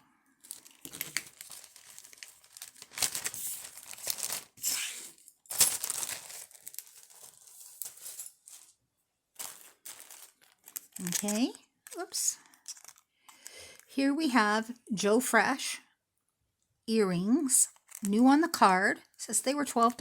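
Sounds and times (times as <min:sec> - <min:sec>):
plastic bag crinkling: 0:00.4 - 0:13.9, 0:17.7 - 0:18.4.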